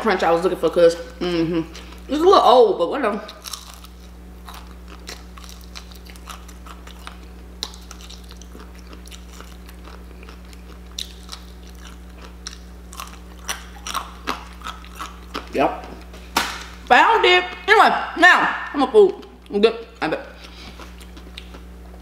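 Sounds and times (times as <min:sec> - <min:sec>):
steady low hum: 0:00.0 - 0:22.0
crunching fried chicken: 0:03.2 - 0:16.8, 0:20.4 - 0:21.8.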